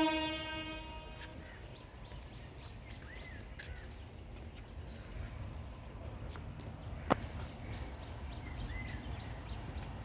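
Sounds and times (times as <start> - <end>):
train horn: 0.0 - 1.6.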